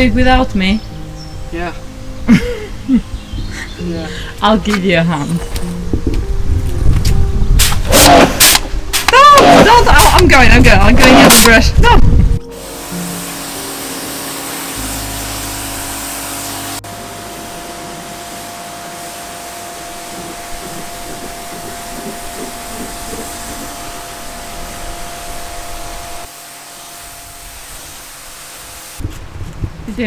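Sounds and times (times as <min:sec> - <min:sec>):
water spraying hiss: 0:07.1 - 0:29.4
pressure washer motor: 0:07.8 - 0:10.2, 0:12.4 - 0:29.0.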